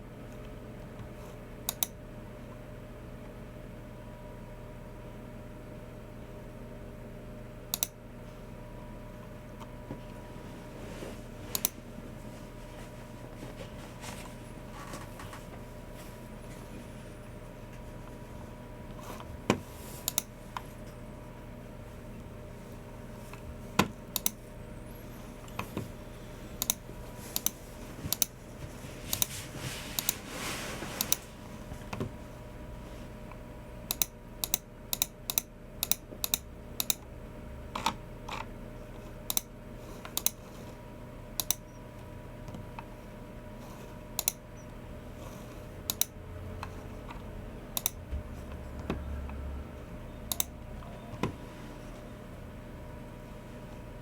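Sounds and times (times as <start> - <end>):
faint steady hum: 0.0 - 54.0
keyboard keystrokes: 50.3 - 51.3.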